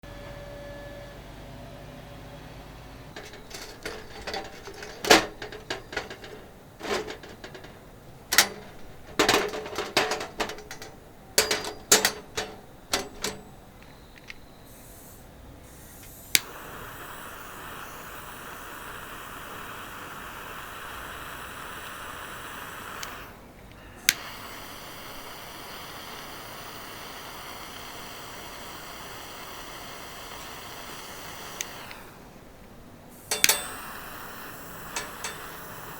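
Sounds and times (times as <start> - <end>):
barbecue gear clacking: 3.1 - 14.4, 33.2 - 35.9
steady gas hiss: 3.2 - 35.9.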